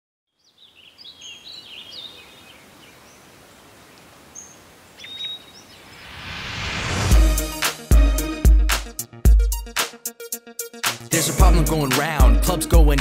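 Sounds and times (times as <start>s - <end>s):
birds chirping: 0.3s - 6.4s
faint outdoor background hiss: 0.3s - 7.1s.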